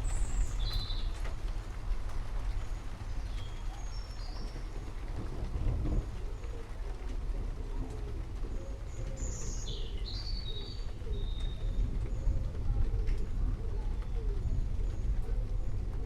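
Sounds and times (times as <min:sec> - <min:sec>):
steady low rumble: 0:00.0 - 0:16.0
low wavering cooing calls: 0:07.6 - 0:15.8.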